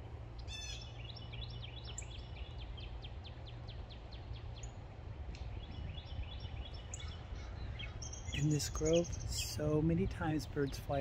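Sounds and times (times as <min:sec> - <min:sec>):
low steady rumble: 0:00.0 - 0:11.0
songbird singing high notes: 0:07.8 - 0:09.8.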